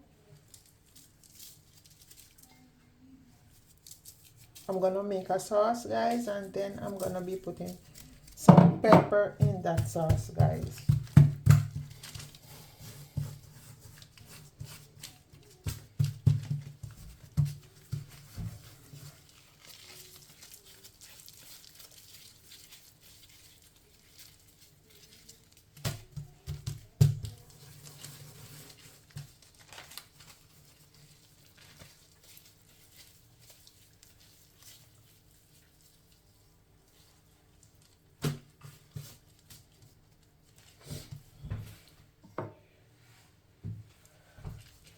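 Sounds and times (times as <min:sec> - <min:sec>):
crinkling: 0:00.2 - 0:42.0
kitchen items knocking: 0:08.4 - 0:12.0.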